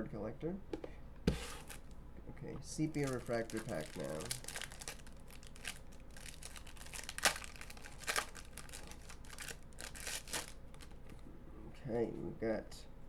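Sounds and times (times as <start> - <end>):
wrapper tearing and crinkling: 1.4 - 1.9, 2.9 - 11.2.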